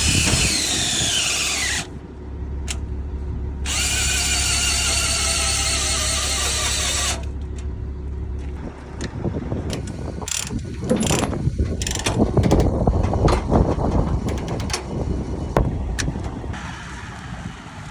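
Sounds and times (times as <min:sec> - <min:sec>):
low rumble: 0:00.0 - 0:17.9
metal clanking and clicking: 0:08.4 - 0:16.5.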